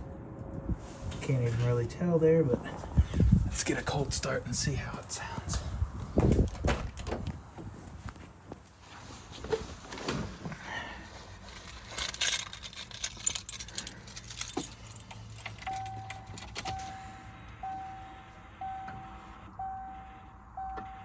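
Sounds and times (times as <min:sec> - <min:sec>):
car keys jangling: 0:11.4 - 0:19.9
car warning chime beeping: 0:15.6 - 0:21.0.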